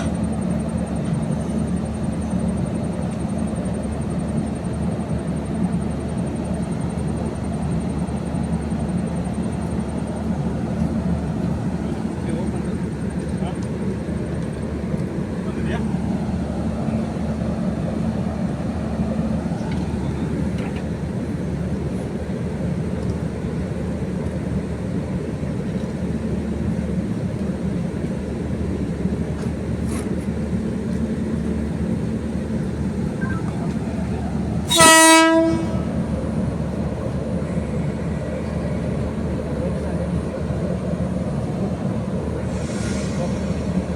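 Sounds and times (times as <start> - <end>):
train rumbling: 0.0 - 43.9
train horn blast: 34.6 - 36.1.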